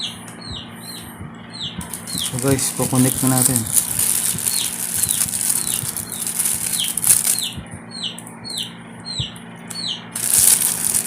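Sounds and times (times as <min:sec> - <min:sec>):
small bird chirping: 0:00.0 - 0:11.0
high rustling hiss: 0:01.8 - 0:07.6, 0:10.2 - 0:11.0.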